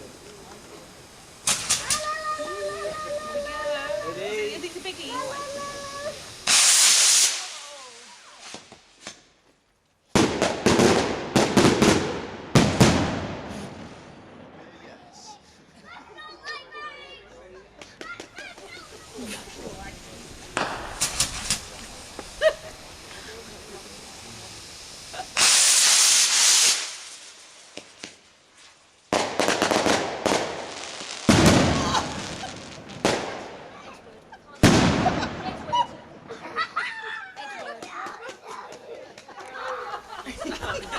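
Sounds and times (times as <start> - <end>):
firework bangs: 0.0 - 9.3, 10.1 - 14.7, 18.0 - 36.8
rocket launching whoosh: 1.4 - 3.6, 5.0 - 9.1, 18.8 - 33.8, 34.6 - 35.9
heavy bang: 20.5 - 22.2.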